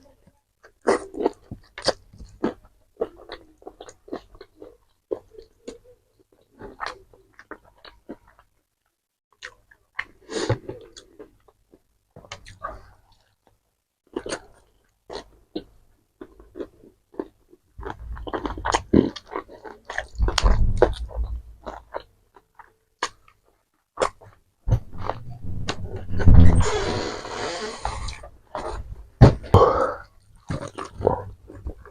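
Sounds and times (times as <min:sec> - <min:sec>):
chewing and lip-smacking: 0:00.6 - 0:08.5, 0:09.4 - 0:24.4, 0:30.3 - 0:31.9.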